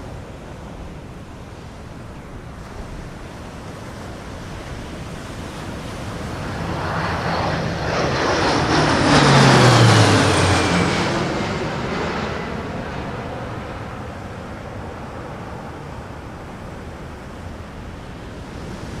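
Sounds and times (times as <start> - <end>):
fighter jet flying past: 2.2 - 19.0.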